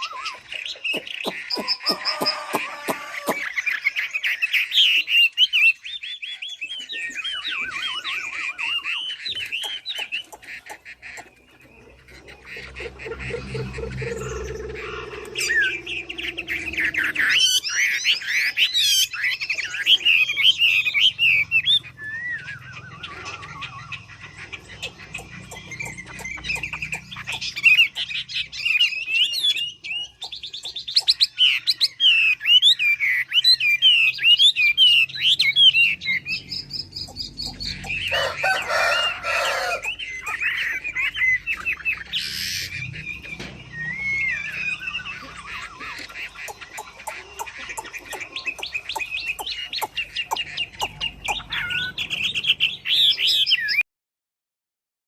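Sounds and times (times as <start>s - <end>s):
lower bird call: 0.0s - 5.6s, 6.2s - 53.8s
songbird warbling: 0.0s - 53.8s.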